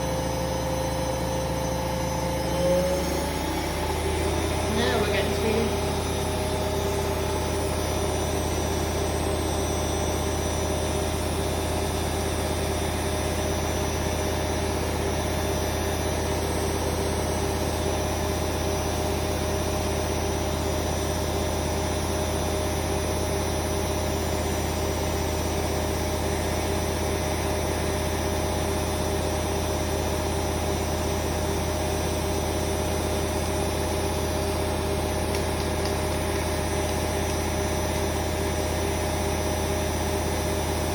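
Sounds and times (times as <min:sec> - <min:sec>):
low hum: 0:00.0 - 0:18.6
motor whine: 0:00.0 - 0:40.9
washing machine drum spinning: 0:31.4 - 0:40.9.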